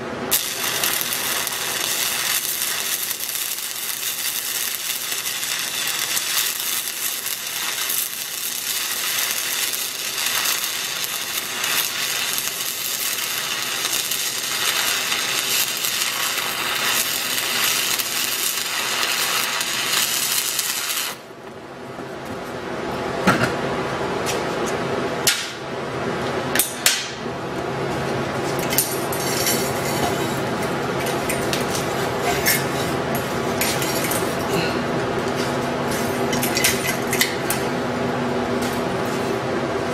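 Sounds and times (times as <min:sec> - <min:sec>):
welding arc crackling: 0:00.0 - 0:21.3.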